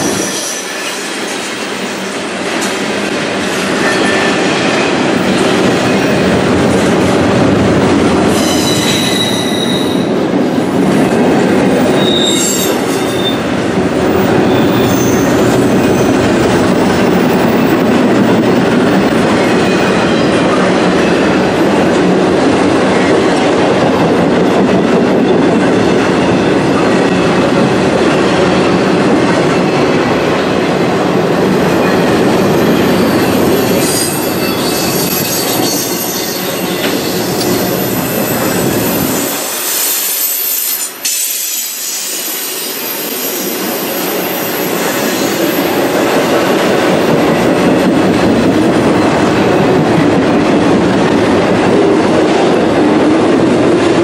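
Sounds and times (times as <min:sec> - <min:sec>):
high wheel squeal: 0:00.0 - 0:01.4, 0:08.3 - 0:10.1, 0:11.8 - 0:13.5, 0:14.3 - 0:16.5, 0:31.8 - 0:45.8
freight train rumbling past: 0:00.0 - 0:54.0.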